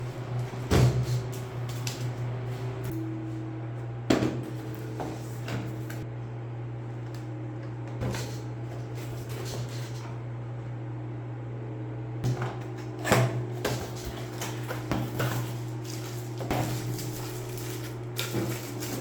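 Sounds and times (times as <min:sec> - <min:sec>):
low hum: 0:00.0 - 0:08.8
packaging knocks and rustles: 0:13.7 - 0:19.0.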